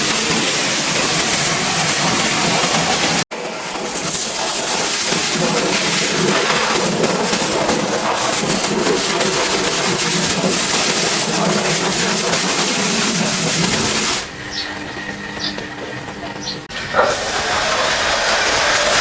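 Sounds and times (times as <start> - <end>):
pressure washer spraying: 0.0 - 19.0
steady hum: 5.1 - 17.1.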